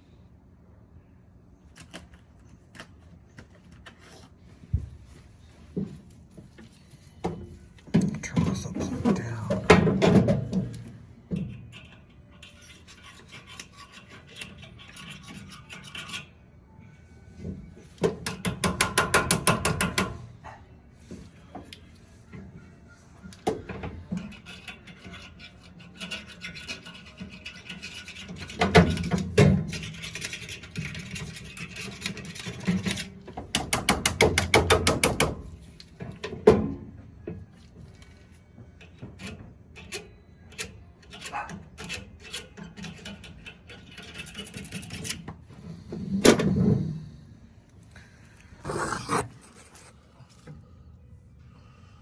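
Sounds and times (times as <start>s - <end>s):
tools scraping and knocking on metal: 48.6s - 50.0s.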